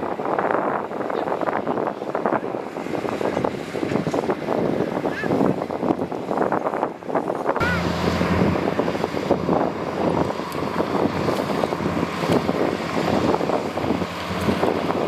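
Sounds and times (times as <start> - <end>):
heavy diesel engine running: 7.6 - 15.0.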